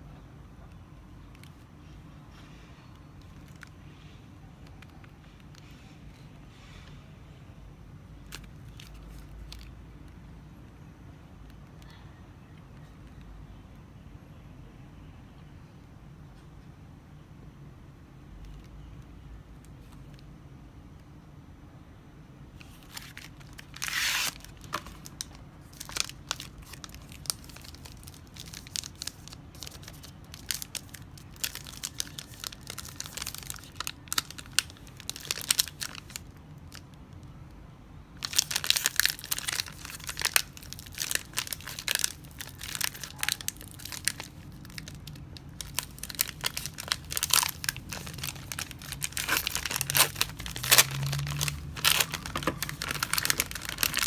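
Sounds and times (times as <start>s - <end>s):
wrapper tearing: 22.6s - 36.3s, 38.2s - 54.0s
wrapper crinkling: 22.6s - 36.8s, 38.2s - 54.0s.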